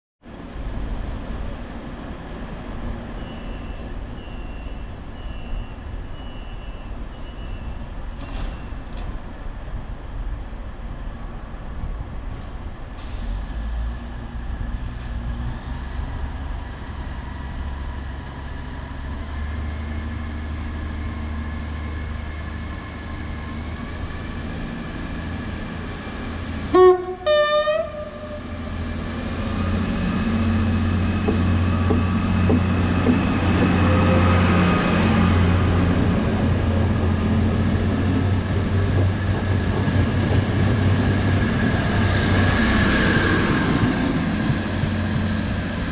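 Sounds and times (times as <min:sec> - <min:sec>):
train running: 0:00.3 - 0:45.9
train horn blast: 0:26.7 - 0:28.9.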